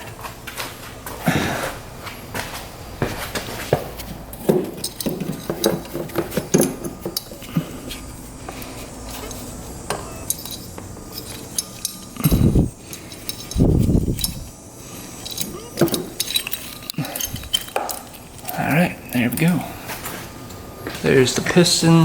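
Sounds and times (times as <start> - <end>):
metal parts clinking and knocking: 4.0 - 19.6.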